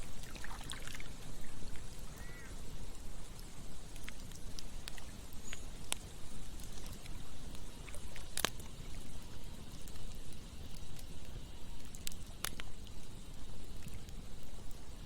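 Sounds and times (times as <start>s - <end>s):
flowing water rushing: 0.0s - 2.2s
campfire crackling: 0.0s - 15.0s.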